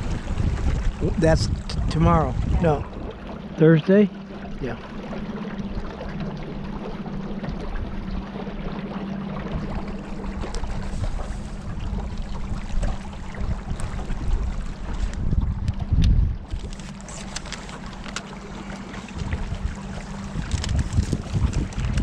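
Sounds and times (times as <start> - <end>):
wind on microphone: 0.0 - 3.4, 9.4 - 22.0
boat motor humming: 0.0 - 22.0
water rushing along hull: 0.0 - 22.0.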